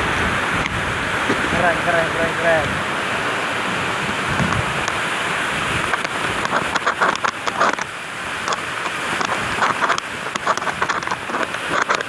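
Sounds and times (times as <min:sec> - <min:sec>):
waterfall rushing and splashing: 0:00.0 - 0:12.0.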